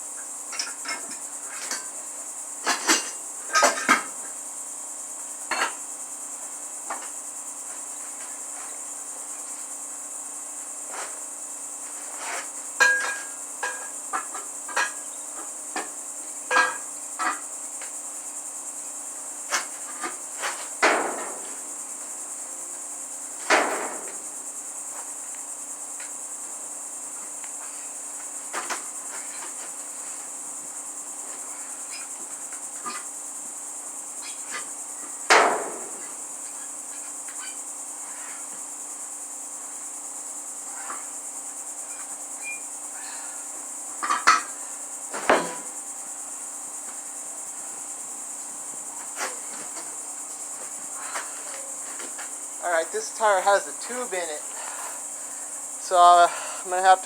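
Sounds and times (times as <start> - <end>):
crickets chirping: 0.0 - 57.0
hand tools clanking on metal: 12.8 - 15.1, 16.5 - 17.4.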